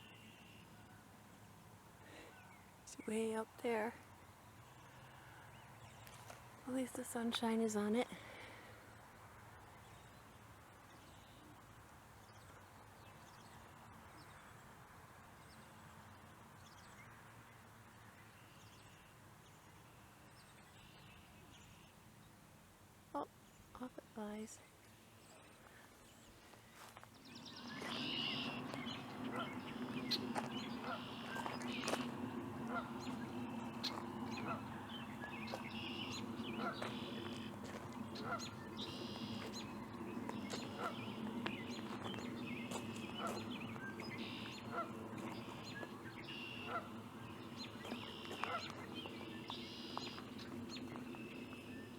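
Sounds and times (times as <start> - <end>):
low steady hiss: 0.0 - 51.9
birds chirping and whistling: 27.2 - 51.9.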